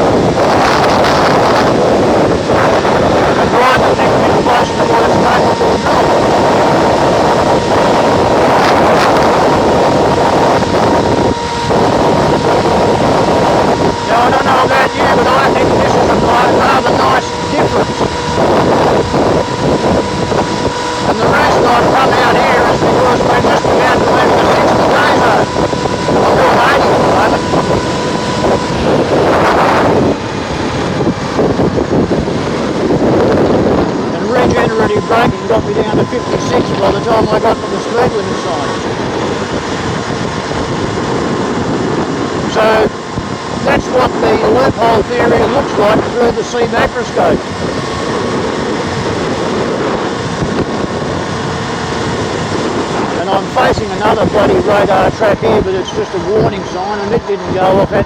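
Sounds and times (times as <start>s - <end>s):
thin steady whine: 0.0s - 58.0s
wind buffeting microphone: 0.0s - 58.0s.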